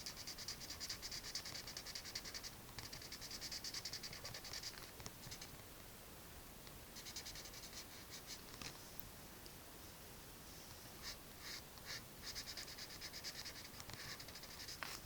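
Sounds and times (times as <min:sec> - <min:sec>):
drawing tool scratching on paper: 0:00.0 - 0:05.5, 0:07.0 - 0:08.4, 0:11.0 - 0:15.0.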